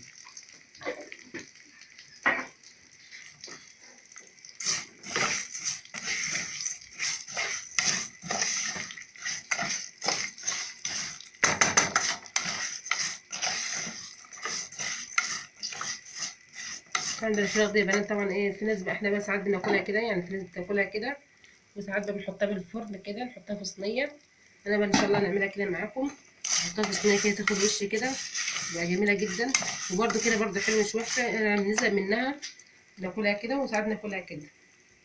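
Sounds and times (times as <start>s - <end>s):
spoon scraping and clinking in a pot: 4.6s - 18.1s, 26.4s - 32.0s.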